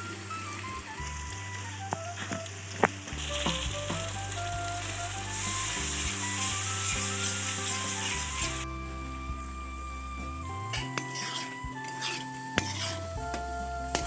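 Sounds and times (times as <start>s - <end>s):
masala sizzling in hot oil: 0.0s - 14.0s
soft background music: 0.0s - 14.0s
metal spatula scraping pan: 10.7s - 13.1s.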